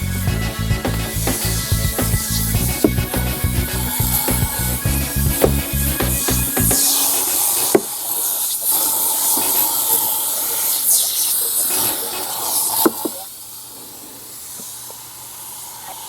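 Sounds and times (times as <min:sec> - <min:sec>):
spraying hiss: 0:00.0 - 0:16.0.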